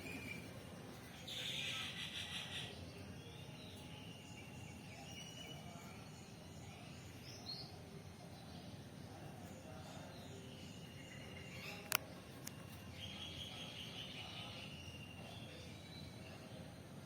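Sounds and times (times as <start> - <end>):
high chirping calls: 1.2 - 7.7.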